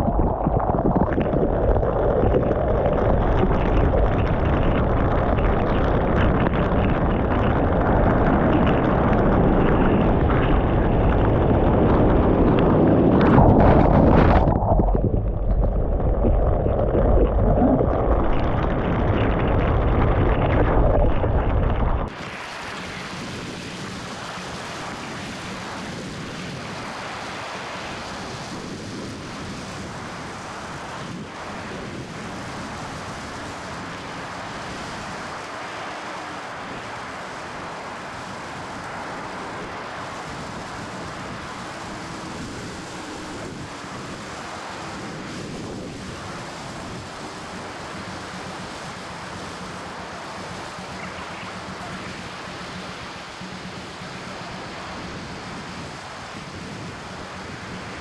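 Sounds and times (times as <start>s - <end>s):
wind buffeting microphone: 0.0s - 22.4s, 45.0s - 47.8s, 54.9s - 58.0s
ocean surf washing: 0.0s - 58.0s.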